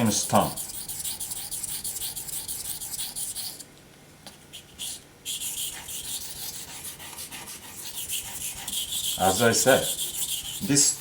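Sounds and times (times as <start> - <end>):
knife rasping on a whetstone: 0.0 - 3.6, 4.6 - 11.0.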